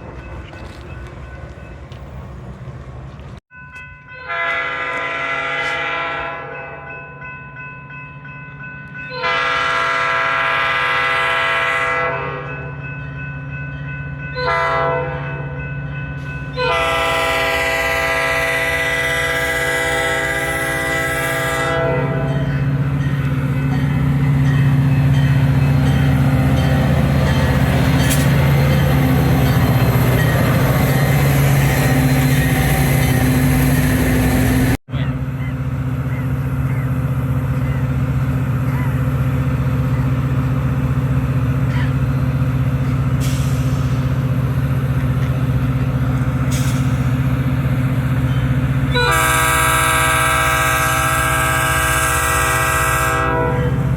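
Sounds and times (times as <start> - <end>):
train wheels rumbling on rails: 0.0 - 3.9, 15.3 - 53.9
train engine drone: 0.0 - 53.9
train air horn blasts: 4.2 - 6.9, 9.1 - 12.5, 14.4 - 15.4, 16.5 - 22.6, 48.9 - 53.9.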